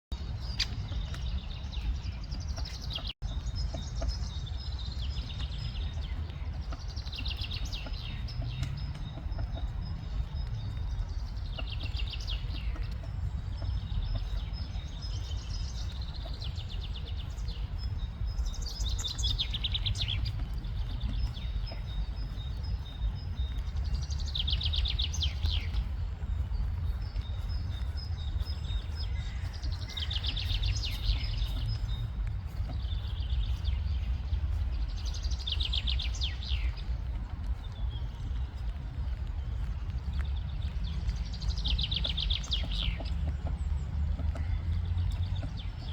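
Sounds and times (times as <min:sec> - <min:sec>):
rain in a forest: 0:22.1 - 0:45.9.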